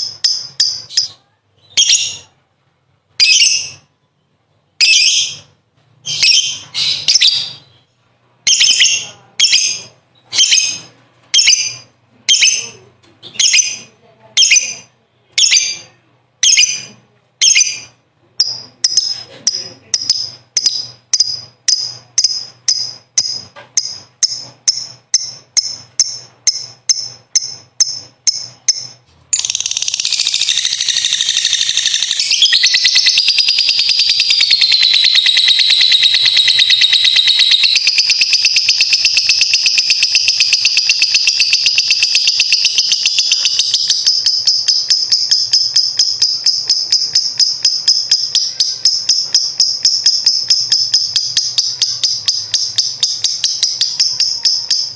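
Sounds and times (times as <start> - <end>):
lovebird rapid chattering trill: 16.4 - 54.9
lovebird sharp high calls: 20.1 - 54.9.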